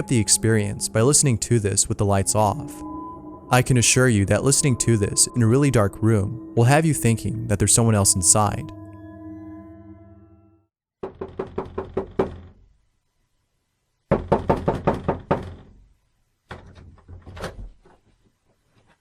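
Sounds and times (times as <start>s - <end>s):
fist knocking on door: 14.1s - 15.7s.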